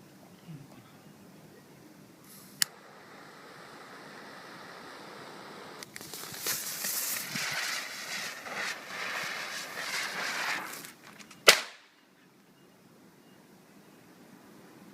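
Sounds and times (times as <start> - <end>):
firework hissing and crackling: 2.2 - 11.7
firework bang: 6.0 - 11.8.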